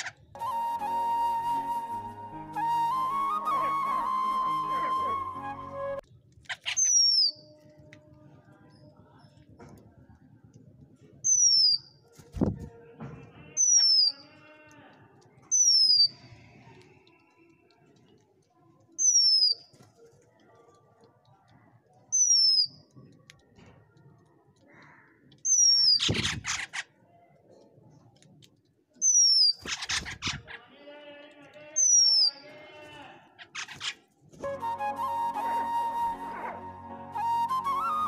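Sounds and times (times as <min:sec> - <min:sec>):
bird whistling descending note: 0:00.4 - 0:06.0, 0:34.4 - 0:38.0.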